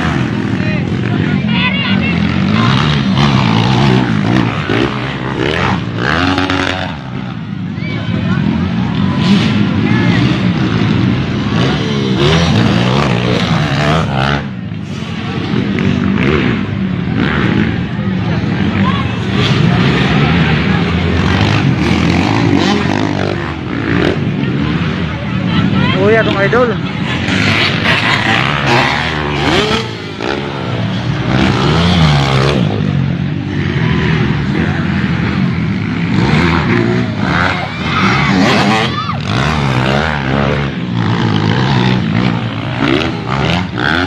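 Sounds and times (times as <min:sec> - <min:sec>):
dirt bike engines revving: 0:00.0 - 0:44.0.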